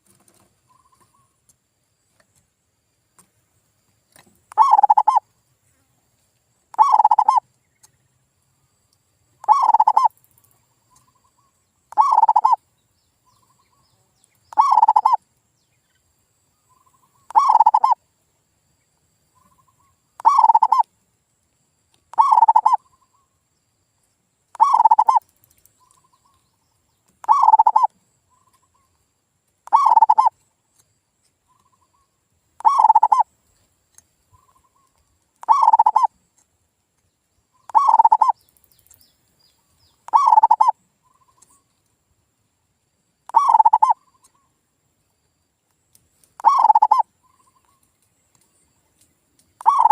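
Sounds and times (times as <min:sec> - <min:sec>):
dove cooing: 0:04.5 - 0:05.2, 0:06.8 - 0:07.4, 0:09.4 - 0:10.1, 0:11.9 - 0:12.6, 0:14.5 - 0:15.2, 0:17.3 - 0:18.0, 0:20.2 - 0:20.8, 0:22.1 - 0:22.8, 0:24.6 - 0:25.2, 0:27.2 - 0:27.9, 0:29.7 - 0:30.3, 0:32.6 - 0:33.2, 0:35.4 - 0:36.1, 0:37.7 - 0:38.4, 0:40.1 - 0:40.8, 0:43.3 - 0:44.0, 0:46.4 - 0:47.0, 0:49.6 - 0:49.9.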